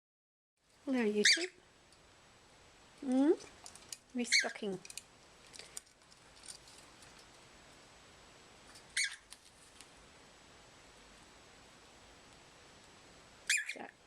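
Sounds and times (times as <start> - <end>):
cockatiel chirp: 1.2 - 1.6, 8.9 - 9.3, 13.5 - 13.9
faint ticks and rustles: 3.0 - 7.9, 8.6 - 10.0.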